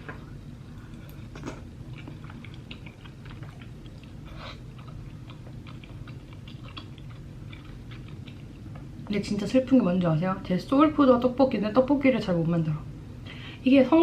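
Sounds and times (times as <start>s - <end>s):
person chewing food: 0.1s - 9.1s.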